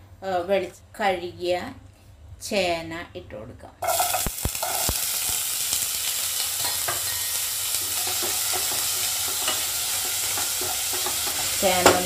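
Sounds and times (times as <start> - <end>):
food sizzling in hot oil: 3.8 - 12.0.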